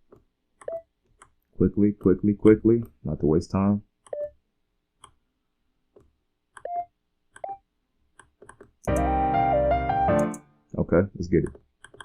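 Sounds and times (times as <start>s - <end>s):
synth melody over keys and bass: 8.9s - 10.5s.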